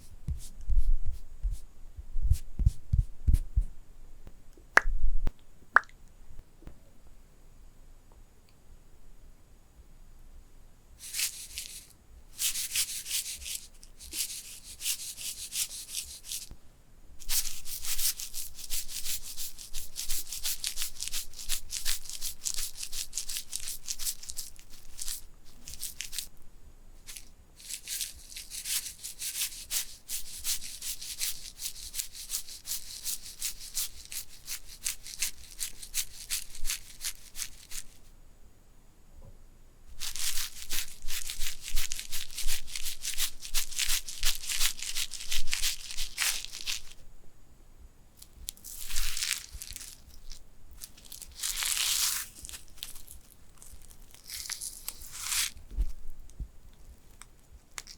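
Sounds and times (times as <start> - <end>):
rapid scratching strokes: 11.0 - 11.8, 12.4 - 16.5, 17.2 - 26.3, 27.1 - 38.0, 39.9 - 47.0.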